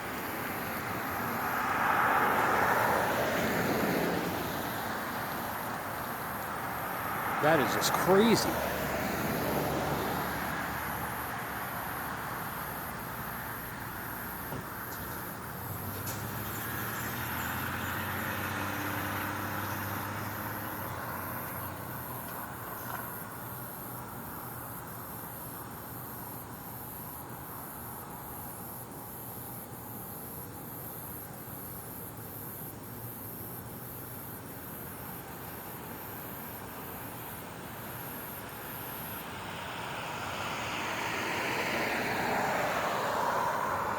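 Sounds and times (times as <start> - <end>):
insects chirping: 0.1 - 43.9
vehicle engine passing: 15.8 - 21.2.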